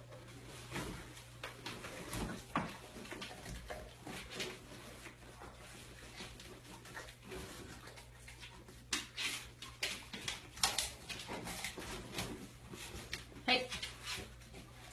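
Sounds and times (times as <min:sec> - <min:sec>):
dog chewing raw meat: 0:01.3 - 0:12.0.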